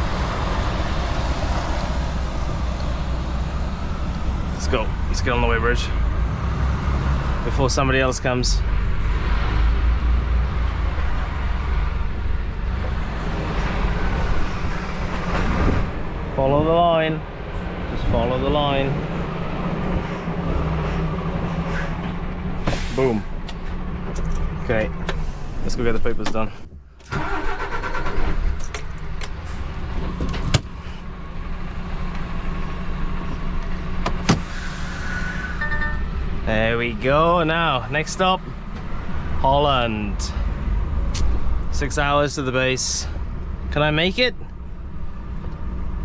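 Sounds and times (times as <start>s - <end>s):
diesel truck engine running: 0.0s - 46.0s
road noise: 0.0s - 46.0s
truck diesel engine idling: 18.5s - 26.0s, 27.1s - 30.0s.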